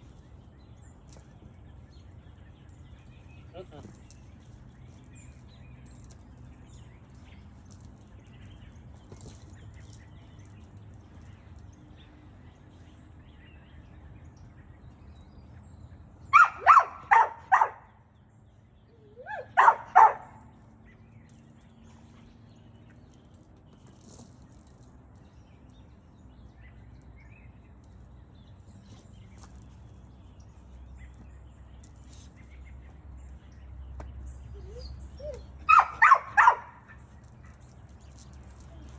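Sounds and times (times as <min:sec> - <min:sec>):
dog barking: 0:16.3 - 0:17.9, 0:19.2 - 0:20.4, 0:34.6 - 0:37.0.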